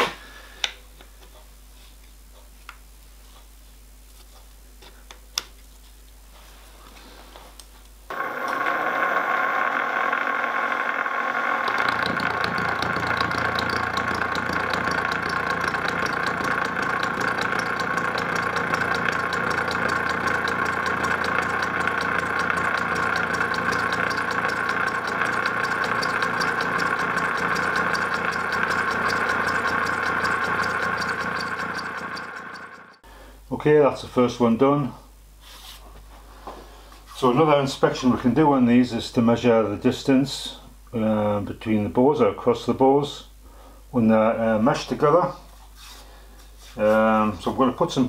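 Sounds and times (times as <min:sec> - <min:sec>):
milling machine whine: 0:08.1 - 0:33.0
low hum: 0:08.1 - 0:33.1.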